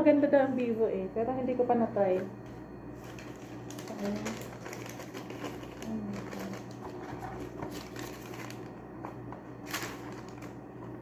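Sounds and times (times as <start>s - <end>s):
steady low hum: 0.0s - 11.0s
box and paper rustling: 3.0s - 11.0s.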